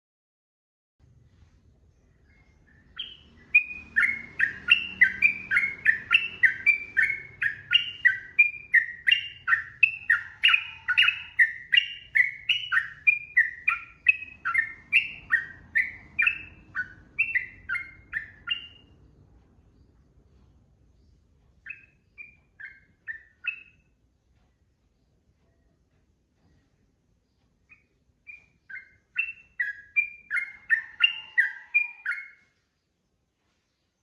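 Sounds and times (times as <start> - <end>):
bird singing whistled notes: 2.1 - 19.0, 21.0 - 24.0, 27.6 - 32.6.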